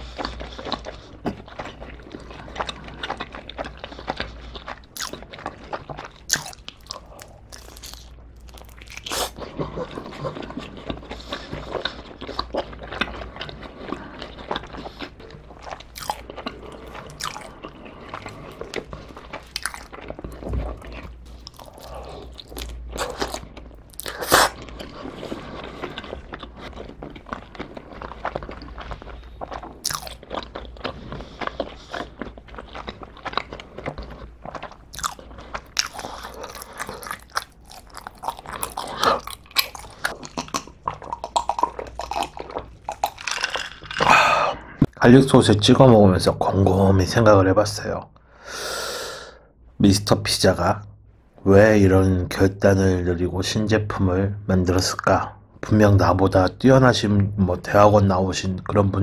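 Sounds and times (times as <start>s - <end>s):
crunchy chewing: 0.0s - 44.6s.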